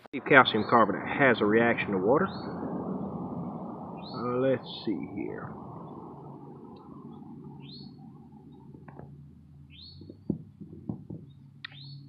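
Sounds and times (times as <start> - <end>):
low steady hum: 0.2 - 12.0
birds chirping: 0.3 - 12.0
light clicks and knocks: 10.0 - 11.8.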